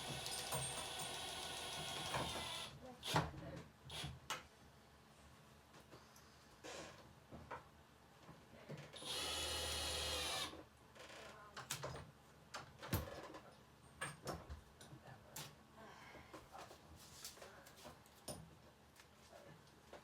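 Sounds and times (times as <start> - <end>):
power drill driving screw: 0.0 - 2.7, 9.0 - 10.6.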